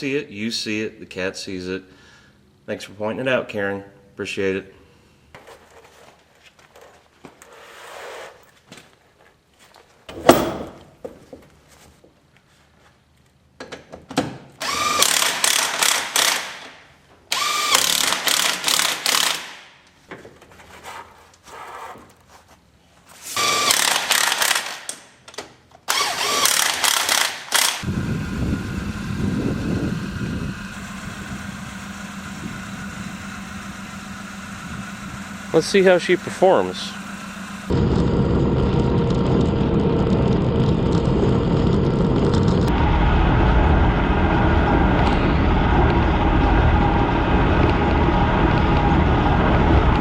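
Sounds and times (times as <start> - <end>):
impact wrench hammering: 10.1 - 10.9, 17.5 - 19.7
truck engine idling: 27.9 - 45.0.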